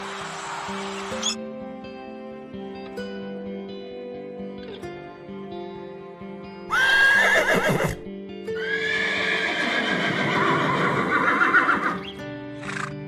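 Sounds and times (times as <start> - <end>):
soft guitar music: 0.0 - 13.0
horse whinnying: 6.7 - 13.0.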